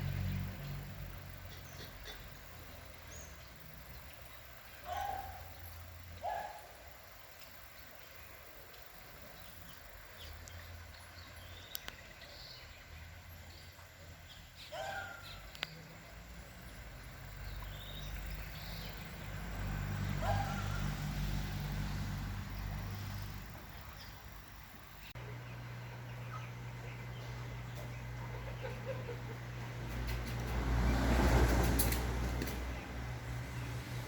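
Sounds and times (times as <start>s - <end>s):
low motor hum: 15.4s - 34.0s.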